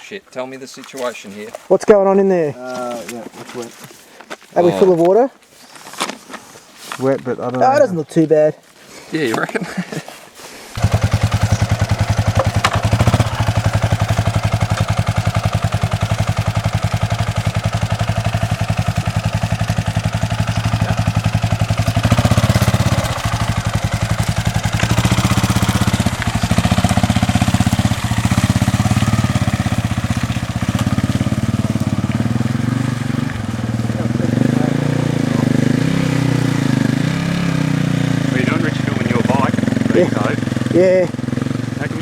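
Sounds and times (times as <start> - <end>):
dirt bike engine revving: 10.8 - 42.0.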